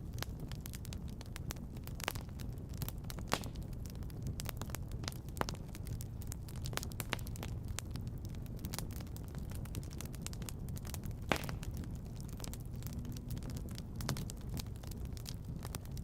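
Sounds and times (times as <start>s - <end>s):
wood fire crackling: 0.0s - 16.0s
low rumble: 9.6s - 15.7s.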